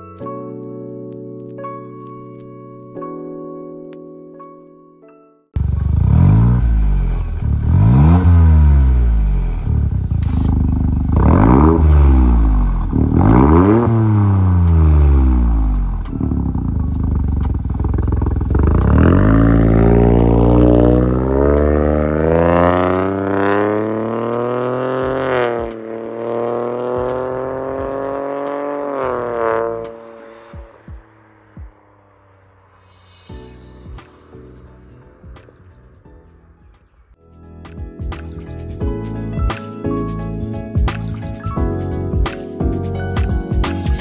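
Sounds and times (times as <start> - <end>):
engine revving: 5.6 - 32.8.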